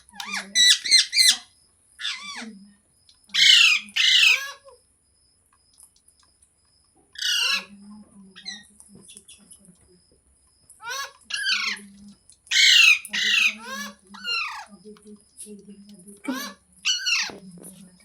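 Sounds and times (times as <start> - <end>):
parrot squawking: 0.0 - 2.5, 3.3 - 4.7, 7.2 - 7.7, 10.8 - 11.8, 12.5 - 14.7, 16.2 - 17.4.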